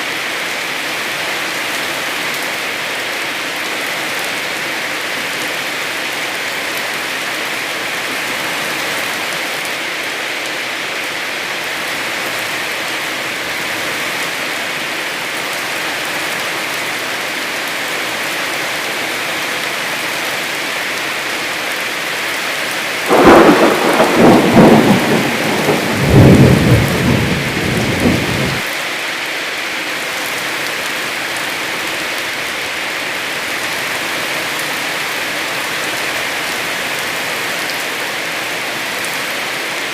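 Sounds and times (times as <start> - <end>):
heavy rain falling: 0.0 - 39.9
thunderclap crackling and rumbling: 23.1 - 28.6.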